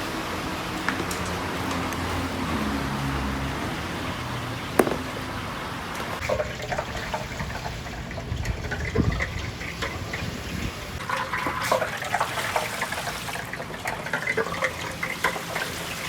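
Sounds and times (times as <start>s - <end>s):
crackling oil pops: 4.8s - 5.3s
deep-frying in hot oil: 6.1s - 16.0s.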